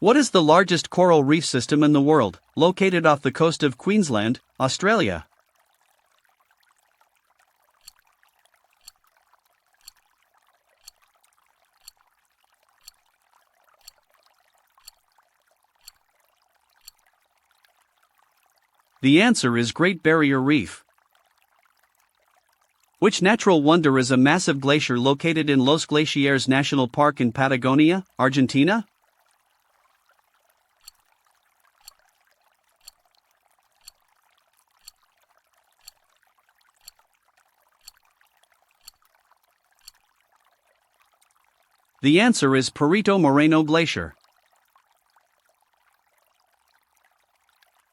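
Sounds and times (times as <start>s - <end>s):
timer ticking: 8.8s - 9.0s, 9.8s - 10.0s, 10.8s - 11.0s, 11.8s - 12.0s, 12.8s - 13.0s, 13.8s - 14.0s, 14.8s - 15.0s, 15.8s - 16.0s, 16.8s - 17.0s, 30.8s - 31.0s, 31.8s - 32.0s, 33.8s - 34.0s, 34.8s - 35.0s, 35.8s - 36.0s, 37.8s - 38.0s, 38.8s - 39.0s.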